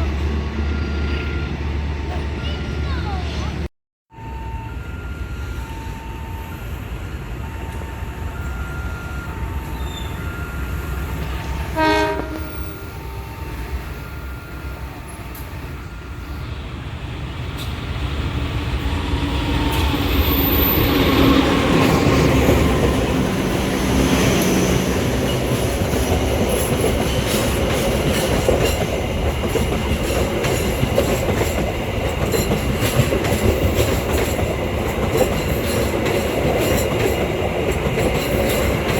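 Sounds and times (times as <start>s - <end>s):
train passing: 0.0s - 38.9s
two-tone warning signal beeping: 4.1s - 16.5s
train horn blast: 11.5s - 13.2s.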